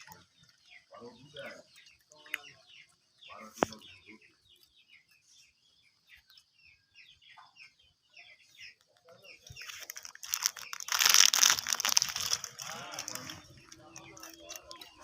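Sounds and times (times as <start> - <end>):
small birds chirping: 0.0 - 15.0
loud rustling crackling: 9.4 - 15.0.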